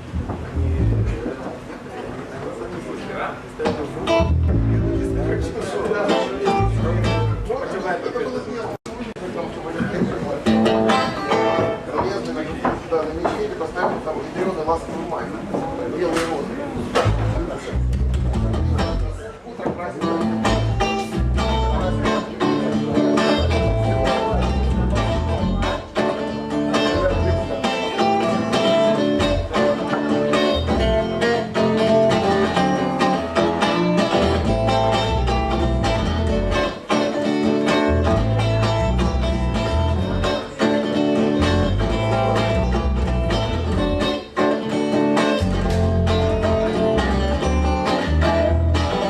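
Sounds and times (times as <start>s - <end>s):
acoustic guitar strumming: 4.0s - 7.6s, 10.4s - 12.0s, 20.0s - 49.0s.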